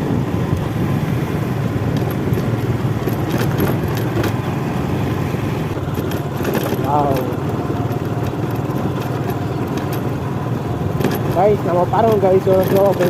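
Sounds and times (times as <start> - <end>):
motorcycle engine and road rumble: 0.0 - 13.0
sharp rattles and clicks: 1.6 - 4.5, 5.7 - 13.0.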